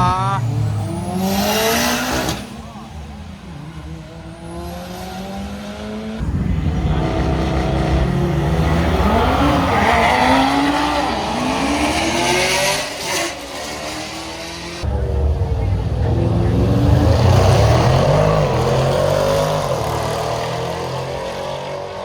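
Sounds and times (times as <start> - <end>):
car engine revving hard: 0.0 - 2.7, 4.0 - 22.0
tires squealing: 6.2 - 21.9.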